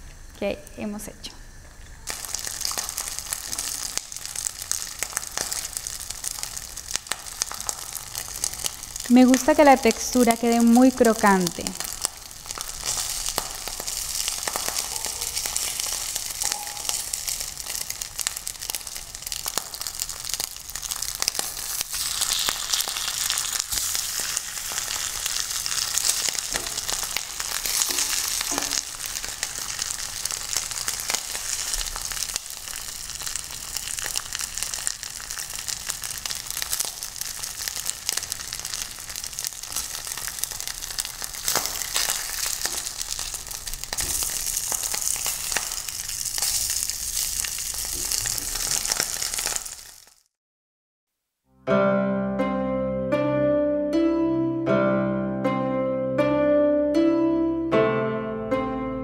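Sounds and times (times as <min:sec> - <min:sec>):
patties sizzling in hot oil: 0:01.4 - 0:50.4
spatula scraping and tapping pan: 0:27.6 - 0:28.8.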